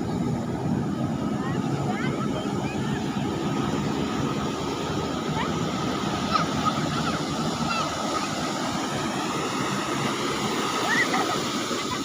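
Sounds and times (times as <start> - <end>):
ocean waves breaking on beach: 0.0 - 12.0.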